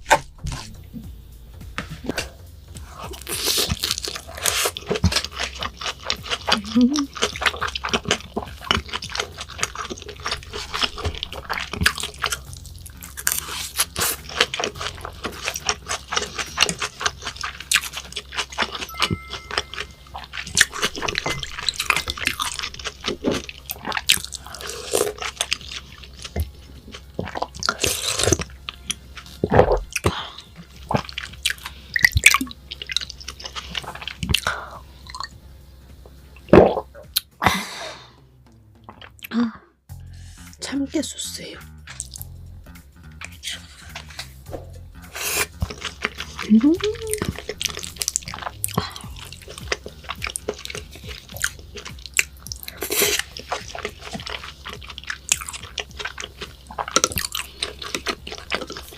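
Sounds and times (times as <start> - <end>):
wet chewing smacks: 3.0 - 35.3, 45.0 - 58.9.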